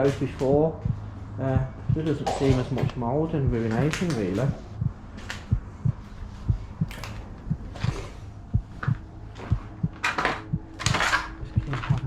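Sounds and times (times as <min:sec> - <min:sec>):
footsteps on floor: 0:03.7 - 0:12.0.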